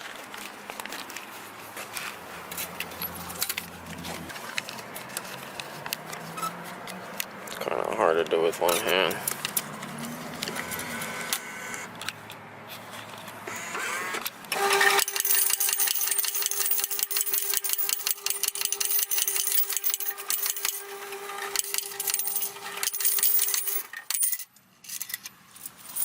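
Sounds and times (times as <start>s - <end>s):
small machine humming and rattling: 9.9s - 12.0s, 13.4s - 24.2s.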